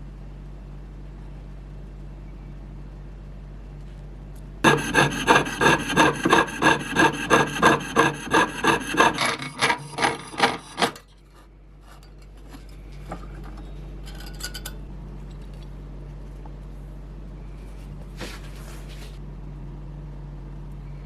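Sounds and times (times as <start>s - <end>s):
hand tool scraping metal: 4.6s - 11.1s.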